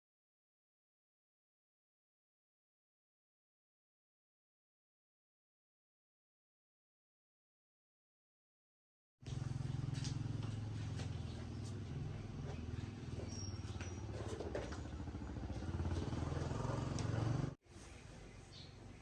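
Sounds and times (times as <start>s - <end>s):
engine running with low hum: 9.2s - 17.6s.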